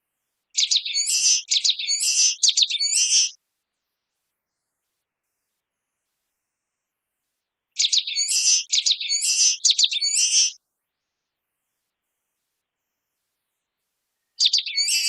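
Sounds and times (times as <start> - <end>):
bird chirping high notes: 14.5 - 15.0.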